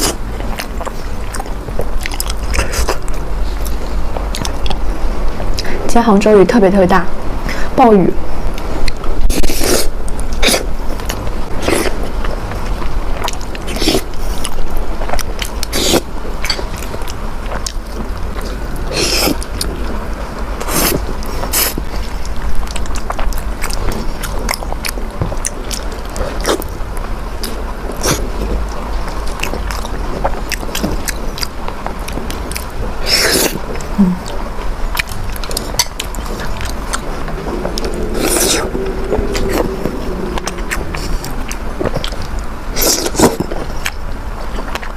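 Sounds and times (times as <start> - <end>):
chewing: 0.0 - 4.9, 8.8 - 20.0, 20.6 - 44.9
low hum: 33.7 - 44.3.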